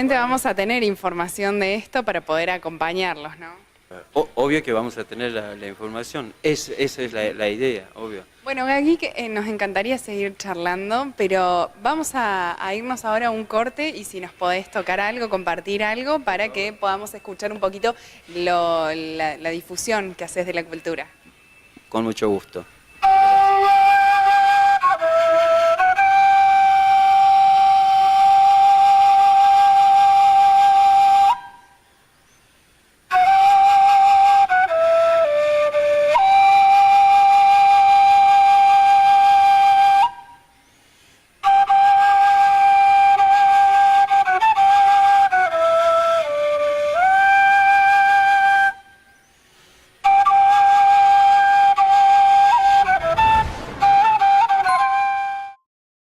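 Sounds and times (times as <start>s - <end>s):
duduk melody: 23.0s - 31.7s, 33.1s - 40.5s, 41.4s - 49.0s, 50.0s - 55.6s.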